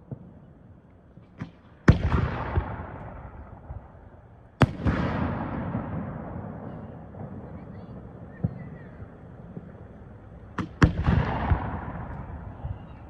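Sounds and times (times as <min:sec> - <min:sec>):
firework shell bursts with rumble: 0:04.6 - 0:07.4.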